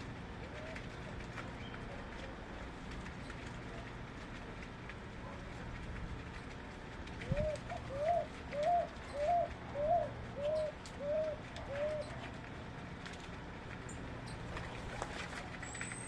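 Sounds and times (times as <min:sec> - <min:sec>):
low background noise: 0:00.0 - 0:16.0
dove cooing: 0:07.3 - 0:12.3.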